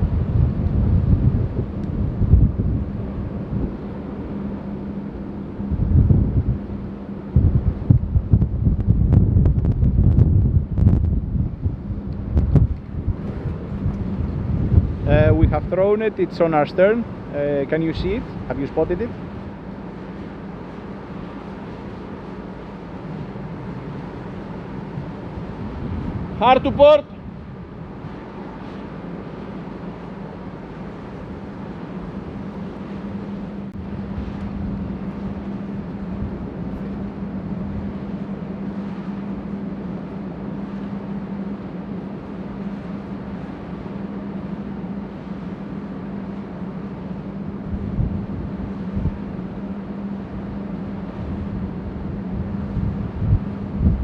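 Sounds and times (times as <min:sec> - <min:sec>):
wind rushing: 0:00.0 - 0:15.9, 0:47.5 - 0:54.0
ship machinery hum: 0:00.0 - 0:54.0
wind buffeting the microphone: 0:00.0 - 0:54.0.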